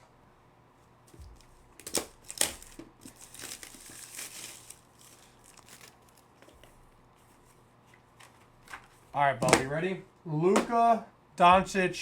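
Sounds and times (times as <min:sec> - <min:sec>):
plastic packaging crinkling and tearing: 0:01.3 - 0:06.8.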